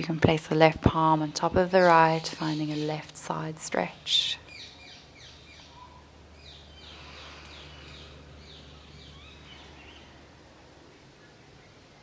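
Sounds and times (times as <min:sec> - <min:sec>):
steady low hum: 0:00.0 - 0:12.0
bird singing down-slurred notes: 0:04.3 - 0:10.2.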